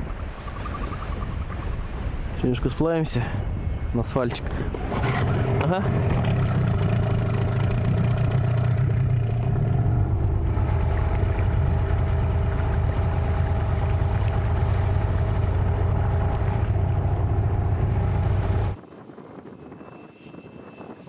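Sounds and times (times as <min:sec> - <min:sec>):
outboard motor running: 0:04.4 - 0:18.8.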